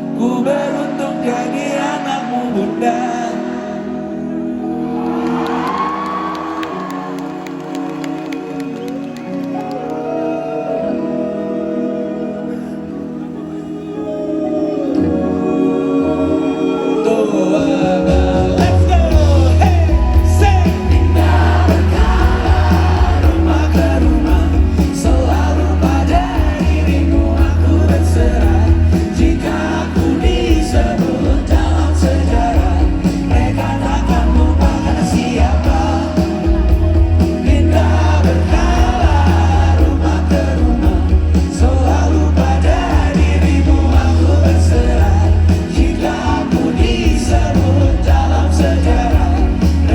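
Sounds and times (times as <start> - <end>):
live pop-rock band with singing: 0.0 - 49.9
heavy pulsing bass: 18.4 - 49.9.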